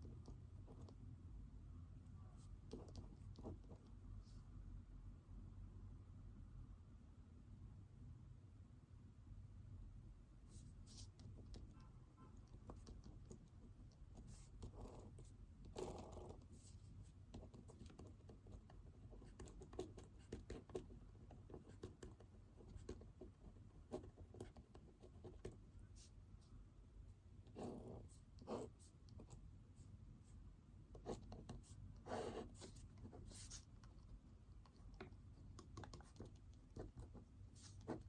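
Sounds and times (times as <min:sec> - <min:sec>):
pen scratching on paper: 0:00.0 - 0:01.0, 0:02.4 - 0:03.9, 0:10.5 - 0:26.2, 0:27.4 - 0:29.9, 0:30.9 - 0:38.0.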